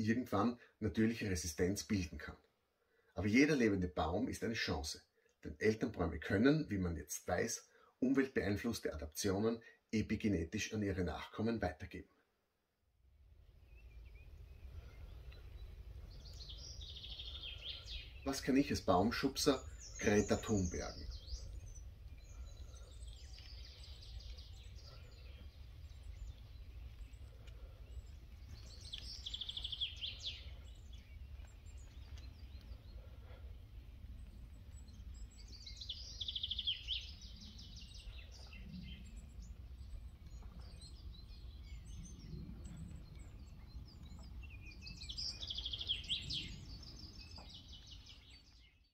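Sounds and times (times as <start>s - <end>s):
faint bird chirps: 13.4s - 48.9s
songbird trilling: 13.7s - 27.2s, 27.9s - 32.9s, 34.7s - 48.8s.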